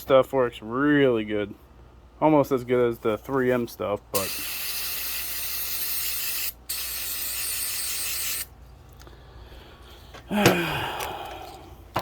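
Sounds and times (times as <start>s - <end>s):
aerosol spraying: 4.2s - 8.5s.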